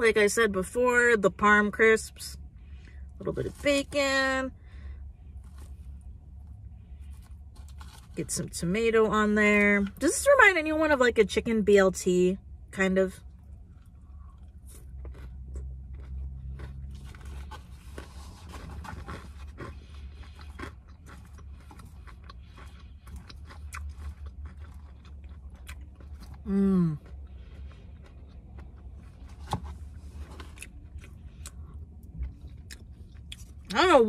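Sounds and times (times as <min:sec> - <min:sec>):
wet chewing with crunches: 0:13.3 - 0:33.8.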